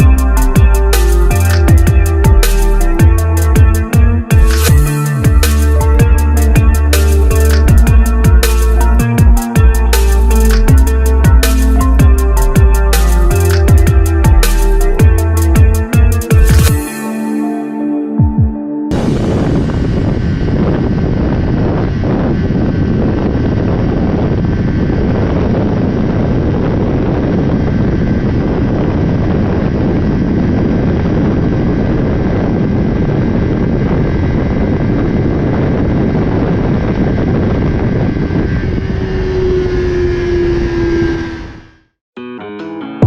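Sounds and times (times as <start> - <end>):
motorcycle engine: 0.0 - 16.8
wind rush: 0.0 - 17.8, 18.9 - 41.9.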